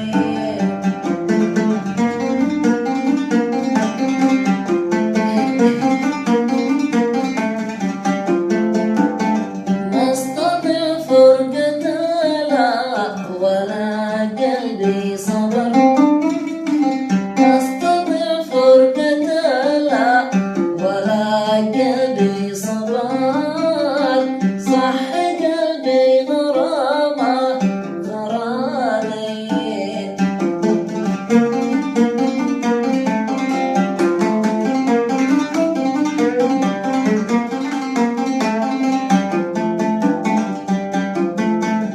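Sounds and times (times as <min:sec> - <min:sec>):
low accompaniment: 0:00.0 - 0:12.1
plucked string instrument melody: 0:00.0 - 0:41.9.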